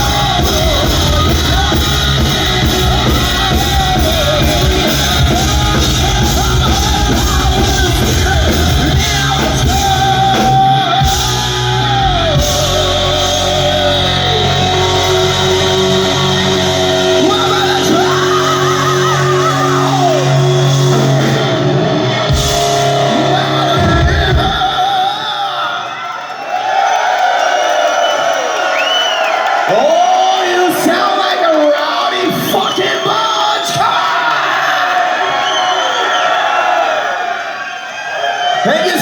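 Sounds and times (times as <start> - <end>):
person singing: 0.0 - 21.7, 22.6 - 25.8
hard rock band playing: 0.0 - 25.4.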